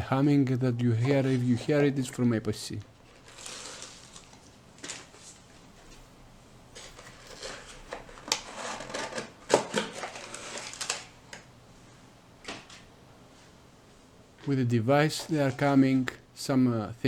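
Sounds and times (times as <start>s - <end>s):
packaging rustling: 2.9s - 6.1s, 6.7s - 11.5s.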